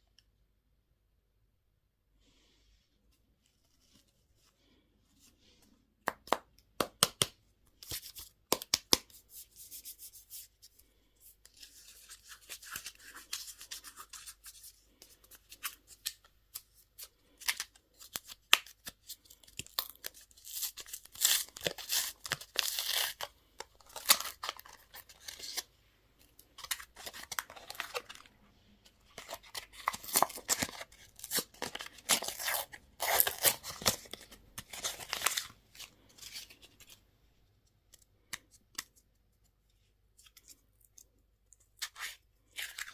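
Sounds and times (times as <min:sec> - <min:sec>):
candy wrappers crinkling and tearing: 0:11.6 - 0:25.7, 0:26.3 - 0:28.4, 0:29.0 - 0:37.0.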